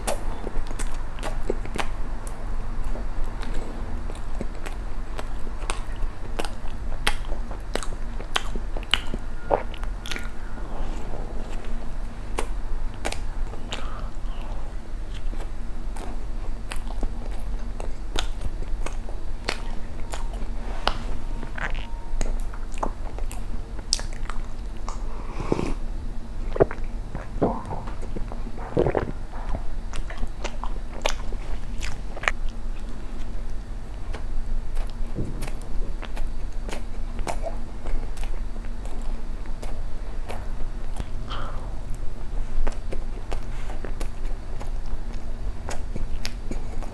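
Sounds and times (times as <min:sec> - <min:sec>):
chewing soft bread: 0:00.0 - 0:46.9
mouth clicks: 0:12.4 - 0:16.1.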